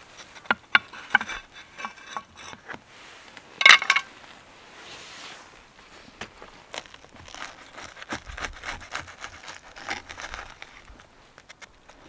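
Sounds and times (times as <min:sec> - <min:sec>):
crinkling and rustling: 0:00.0 - 0:12.0
small clicks and knocks: 0:00.2 - 0:02.8, 0:03.4 - 0:04.1, 0:06.2 - 0:12.0.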